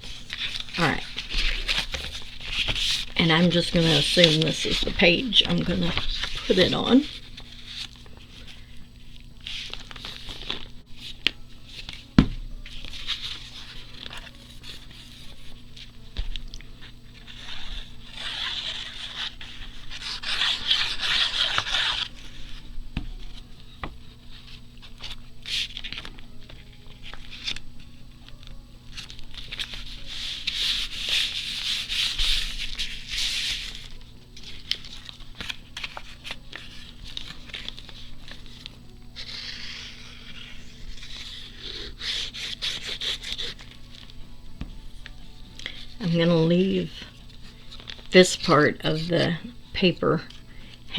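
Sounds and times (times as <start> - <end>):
paper rubbing on tabletop: 0.0 - 8.7, 17.2 - 22.6, 29.4 - 43.8.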